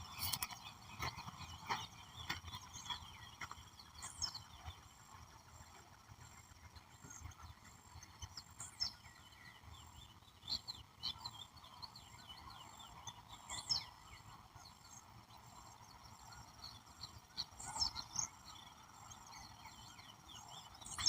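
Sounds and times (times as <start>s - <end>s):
birds chirping and singing: 0.0s - 21.0s.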